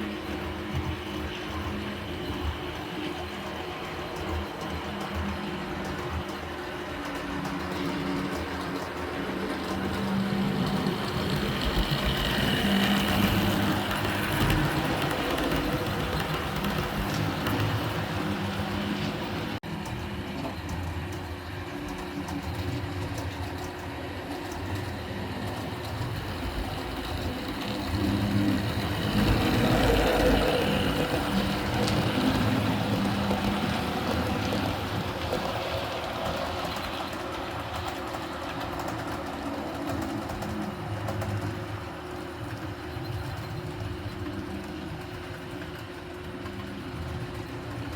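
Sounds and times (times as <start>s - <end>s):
train rumbling on rails: 0.0s - 47.9s.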